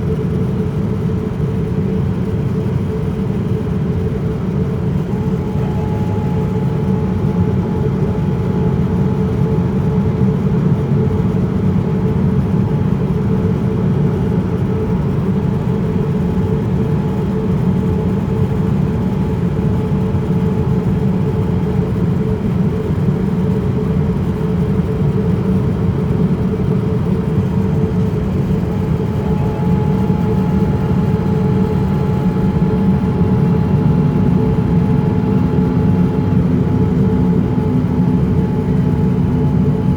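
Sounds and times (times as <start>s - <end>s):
aircraft cabin engine and airflow rush: 0.0s - 39.9s
even hum: 4.2s - 20.5s, 26.8s - 39.9s.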